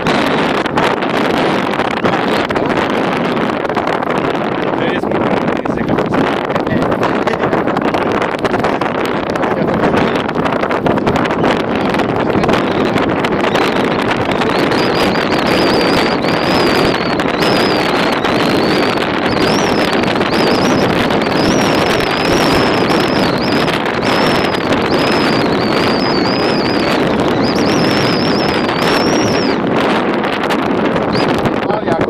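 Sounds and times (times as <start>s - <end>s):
wind buffeting microphone: 0.0s - 32.0s
high wavering whistling tone: 12.6s - 29.6s.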